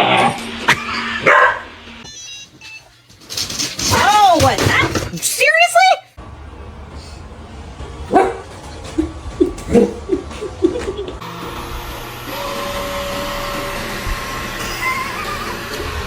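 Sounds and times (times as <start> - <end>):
dog barking and yelping: 1.1 - 1.7, 8.1 - 11.2
robot vacuum whirring: 10.4 - 16.0.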